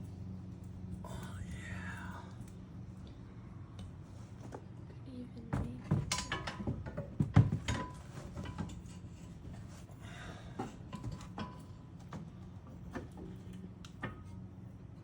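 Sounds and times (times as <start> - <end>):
steady low hum: 0.0 - 15.0
tools clicking and knocking: 5.8 - 9.3.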